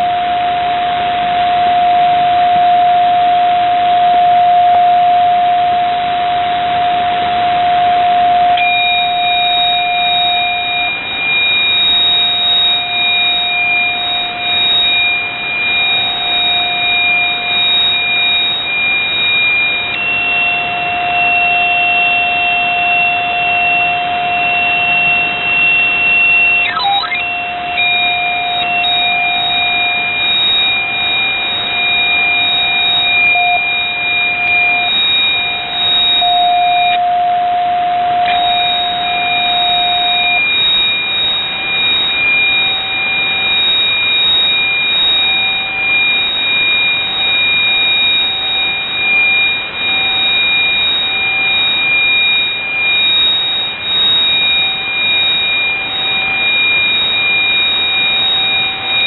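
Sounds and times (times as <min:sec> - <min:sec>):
radio static hiss: 0:00.0 - 0:10.9
lower pulsing tone: 0:00.0 - 0:51.5
high whistling tones: 0:00.0 - 0:59.0.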